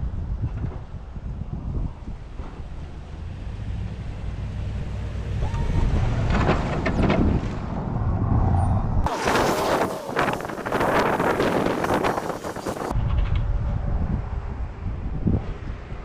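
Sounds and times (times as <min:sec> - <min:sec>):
wind on microphone: 0:00.0 - 0:16.0
bright rushing noise: 0:09.1 - 0:12.9.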